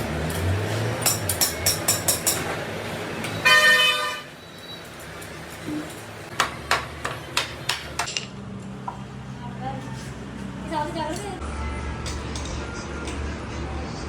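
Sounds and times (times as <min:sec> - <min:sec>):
vehicle horn: 0:03.4 - 0:04.4.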